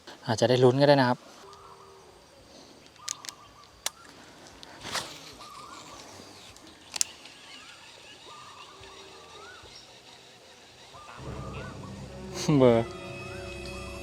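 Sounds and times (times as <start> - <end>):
birds chirping: 0.3 - 14.0
sharp clicks: 2.8 - 9.0.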